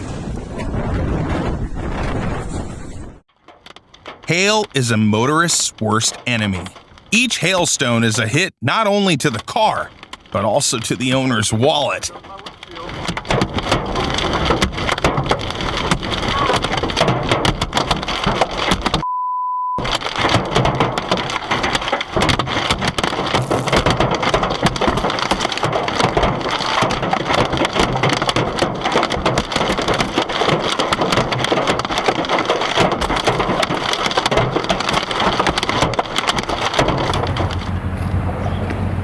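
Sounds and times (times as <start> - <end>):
hail pelting on cars: 9.4 - 19.0, 19.8 - 39.0
censor bleep: 19.0 - 19.8.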